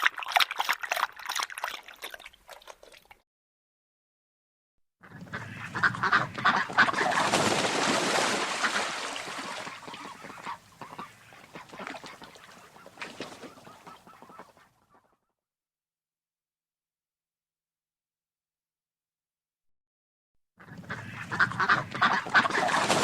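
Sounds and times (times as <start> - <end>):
flock of waterfowl calling: 5.1 - 7.4, 8.4 - 15.1, 20.6 - 23.0.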